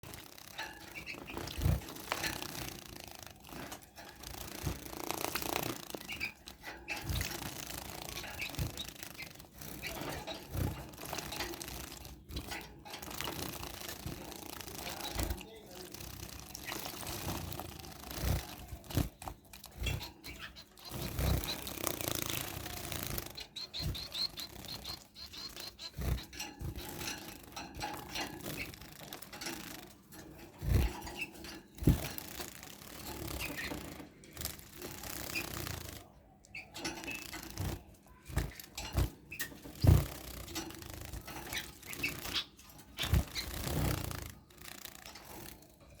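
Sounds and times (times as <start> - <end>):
wing flutters: 0.0 - 46.0.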